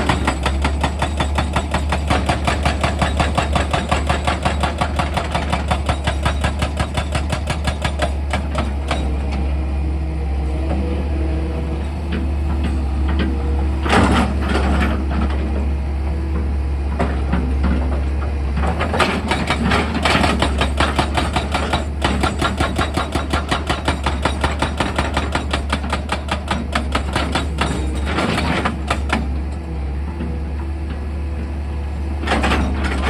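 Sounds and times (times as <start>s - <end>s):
rock drill hammering: 0.0s - 9.1s, 18.9s - 29.3s
excavator engine humming: 0.0s - 33.0s.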